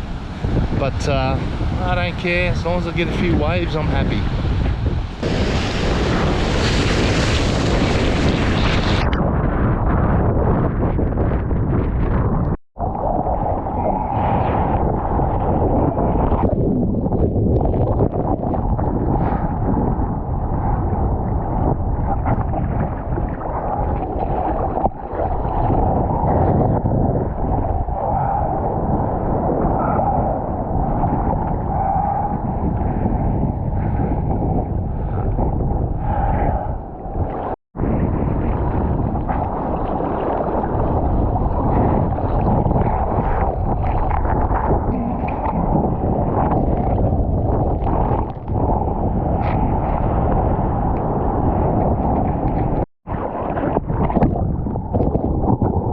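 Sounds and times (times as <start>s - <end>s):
rushing and sloshing water: 0.0s - 9.1s, 17.7s - 33.1s, 36.2s - 55.9s
wind buffeting microphone: 0.0s - 55.9s.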